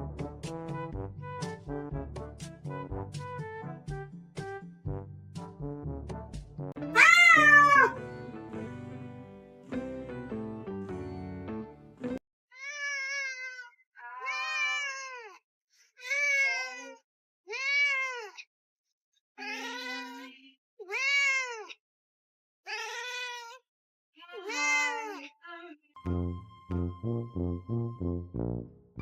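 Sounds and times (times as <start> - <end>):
music: 0.0 - 12.2, 26.0 - 29.0
cat meowing: 6.9 - 8.0, 12.6 - 15.0, 16.0 - 16.9, 17.5 - 18.4, 22.7 - 23.6.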